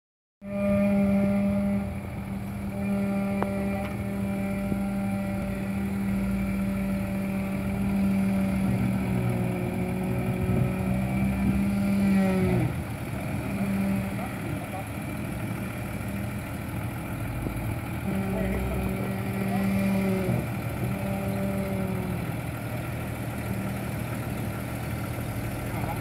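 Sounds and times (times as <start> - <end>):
engine droning at steady revs: 0.4 - 26.0.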